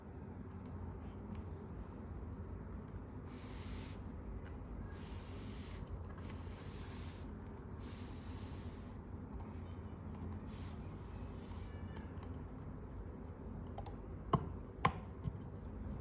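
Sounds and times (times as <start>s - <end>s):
hiss of air: 3.2s - 4.1s, 4.8s - 9.0s, 10.4s - 11.8s.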